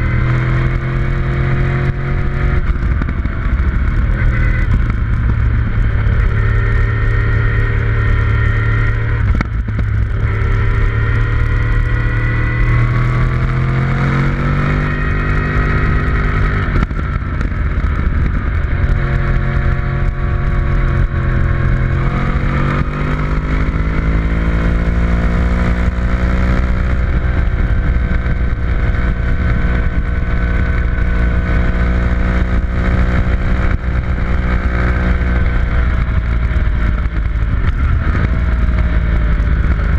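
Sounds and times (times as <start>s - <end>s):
rush of noise: 0.0s - 31.8s
vehicle engine running hard: 0.0s - 39.9s.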